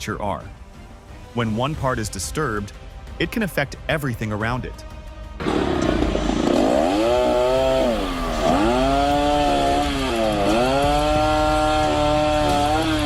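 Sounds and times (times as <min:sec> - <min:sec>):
chainsaw cutting wood: 0:05.4 - 0:13.0.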